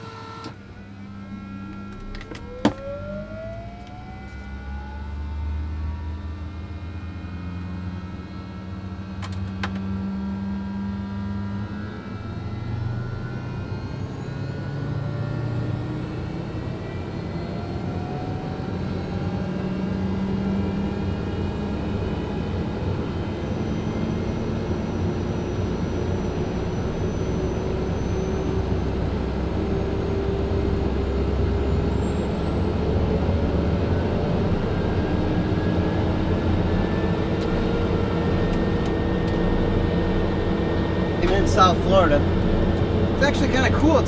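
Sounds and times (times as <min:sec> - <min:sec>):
turbine aircraft engine running: 0:00.0 - 0:44.0.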